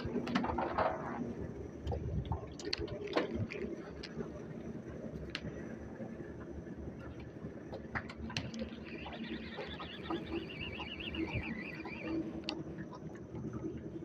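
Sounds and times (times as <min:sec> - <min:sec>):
bird warbling trill: 0:08.4 - 0:12.3.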